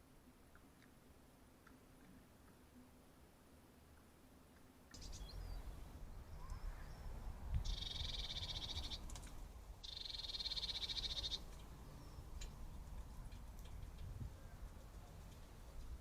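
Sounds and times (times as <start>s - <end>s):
low outdoor rumble: 0.0s - 16.0s
small bird high trill: 7.6s - 9.0s, 9.8s - 11.5s.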